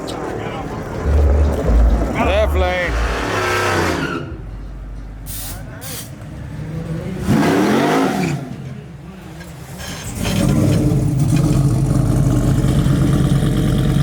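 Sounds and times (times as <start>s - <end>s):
vehicle engine revving: 0.6s - 4.4s.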